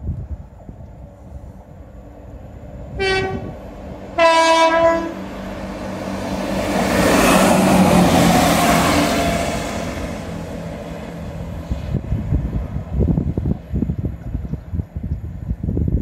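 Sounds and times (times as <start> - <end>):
train engine and wheel noise: 0.0 - 16.0
two-tone train horn: 2.9 - 3.6, 4.2 - 5.3, 8.3 - 10.0.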